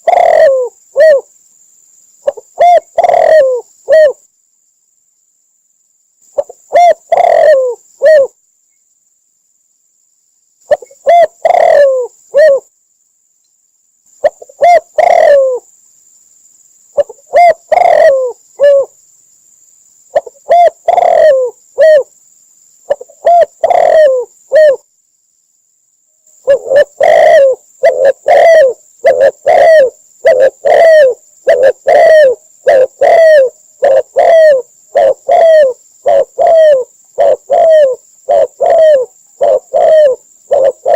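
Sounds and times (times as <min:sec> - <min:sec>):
dove cooing: 0:00.0 - 0:01.3, 0:02.2 - 0:04.2, 0:06.4 - 0:08.4, 0:10.7 - 0:12.7, 0:14.2 - 0:15.7, 0:17.0 - 0:19.0, 0:20.1 - 0:22.1, 0:22.9 - 0:24.9, 0:26.4 - 0:40.9.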